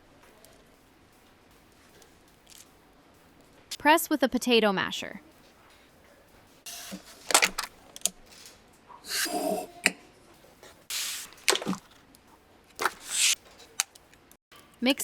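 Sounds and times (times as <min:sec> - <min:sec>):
pastry squishing and rustling: 0:10.9 - 0:12.1, 0:12.7 - 0:14.3.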